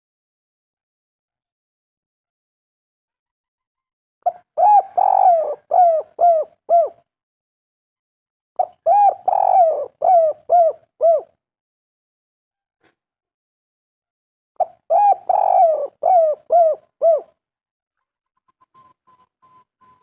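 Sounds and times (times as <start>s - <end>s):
dove cooing: 4.3s - 7.0s, 8.6s - 11.3s, 14.6s - 17.4s.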